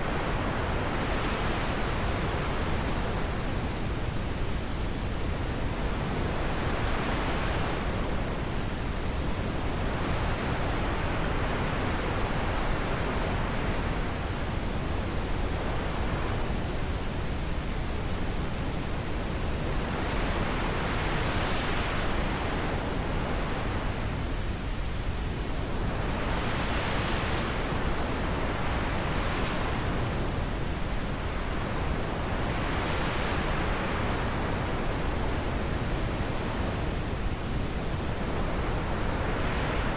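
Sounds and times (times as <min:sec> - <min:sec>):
steady wind with gusts: 0:00.0 - 0:39.9.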